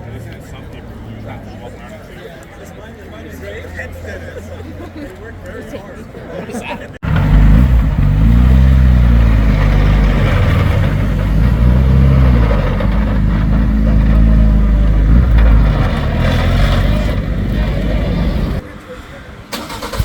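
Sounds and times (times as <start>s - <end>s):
car engine revving and idling: 7.0s - 18.6s.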